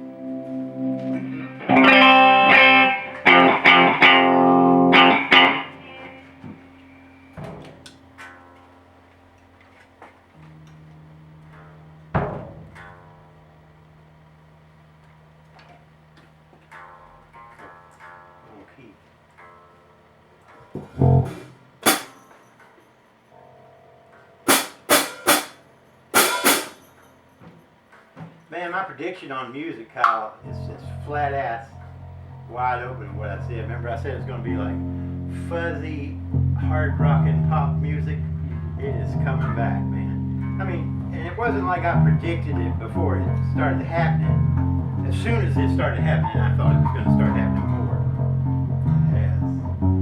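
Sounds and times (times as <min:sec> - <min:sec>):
distorted electric guitar chords: 0:00.0 - 0:22.4, 0:23.4 - 0:26.9, 0:30.4 - 0:50.0
sharp drum hits: 0:20.8 - 0:22.2, 0:24.5 - 0:25.6, 0:26.2 - 0:26.9.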